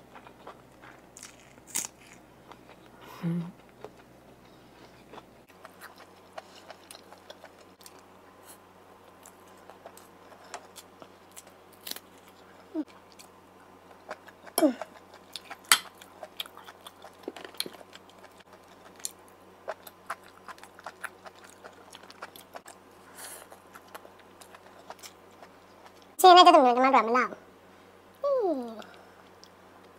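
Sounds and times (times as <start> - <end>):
chewing with wet mouth sounds: 4.8 - 8.1, 12.2 - 26.2.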